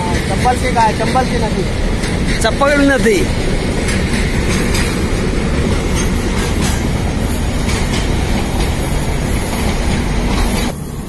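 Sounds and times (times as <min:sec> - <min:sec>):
wheels clacking over rails: 0:00.0 - 0:10.8
freight train rumbling past: 0:00.0 - 0:11.0.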